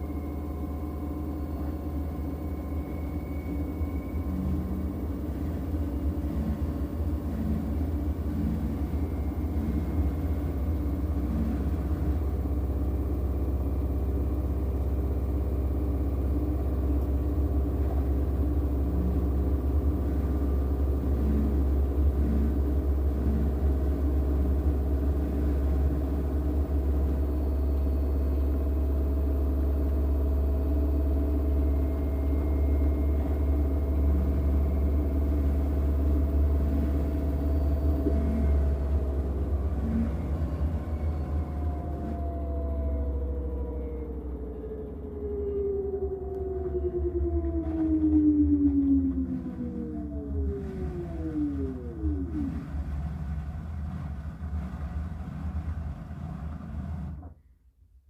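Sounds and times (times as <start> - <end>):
washing machine drum spinning: 0.0 - 57.2.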